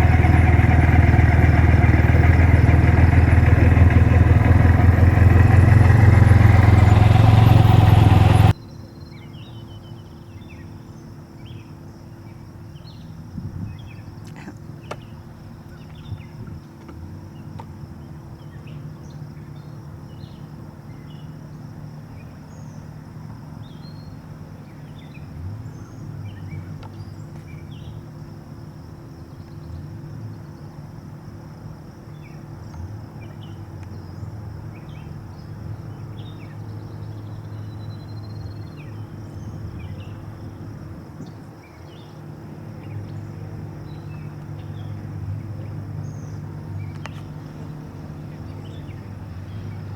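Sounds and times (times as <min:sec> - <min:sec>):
low engine hum: 0:00.0 - 0:08.6, 0:23.6 - 0:49.9
birds chirping: 0:00.0 - 0:10.7.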